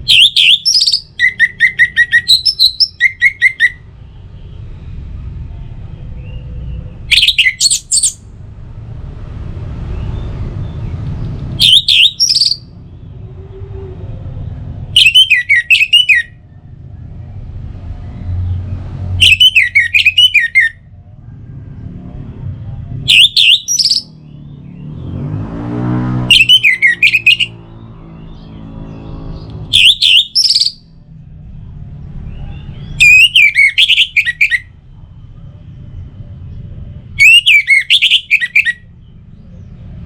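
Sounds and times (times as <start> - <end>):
thrush singing: 0.0 - 3.9, 6.1 - 8.3, 11.5 - 14.1, 26.2 - 31.0, 32.2 - 34.8.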